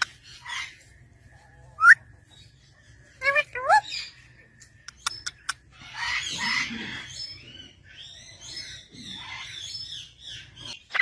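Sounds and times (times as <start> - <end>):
parrots squawking: 5.0 - 8.0, 10.7 - 11.0.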